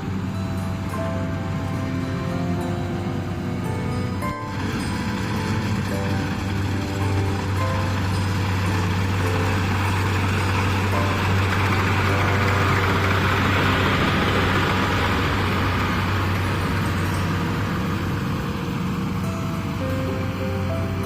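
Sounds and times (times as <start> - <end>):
diesel engine drone: 0.0 - 21.0
threshing machinery rushing: 3.6 - 20.1.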